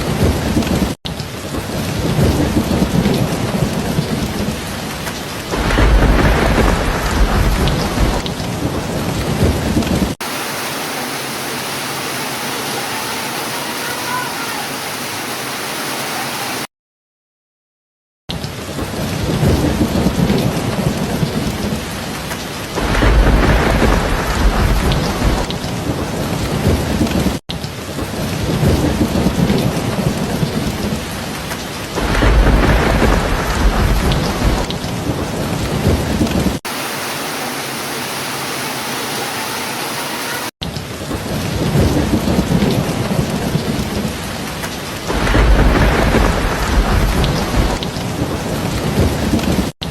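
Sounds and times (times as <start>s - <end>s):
thunder rolling: 0.0s - 10.2s, 18.7s - 27.4s, 28.0s - 36.6s, 40.9s - 49.7s
heavy rain: 0.0s - 16.7s, 18.3s - 49.9s.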